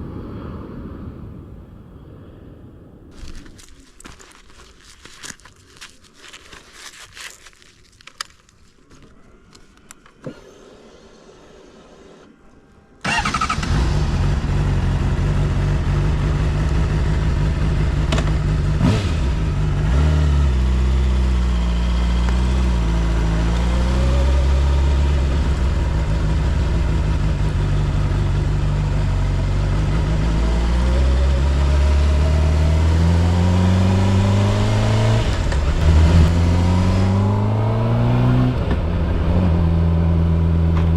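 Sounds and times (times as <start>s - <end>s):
faint clicks and rustles: 3.1s - 10.3s.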